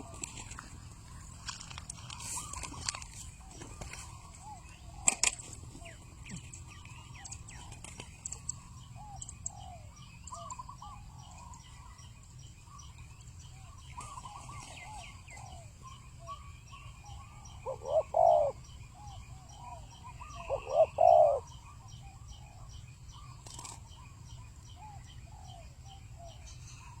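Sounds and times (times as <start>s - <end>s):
doves cooing: 17.3s - 21.6s.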